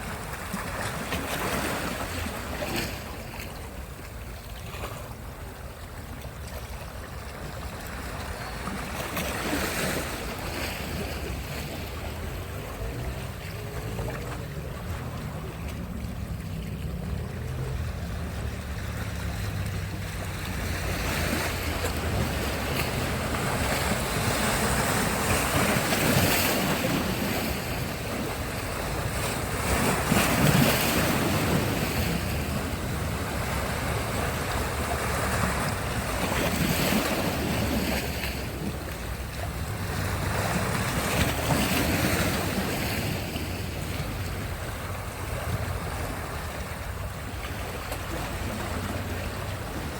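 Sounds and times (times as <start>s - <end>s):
surf breaking on a beach: 0.0s - 49.9s.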